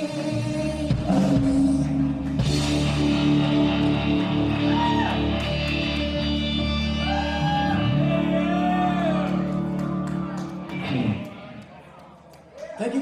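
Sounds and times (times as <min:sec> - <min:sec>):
drums: 0:00.0 - 0:08.7
ringing guitar chords: 0:02.4 - 0:11.2
bending guitar notes: 0:02.4 - 0:11.3.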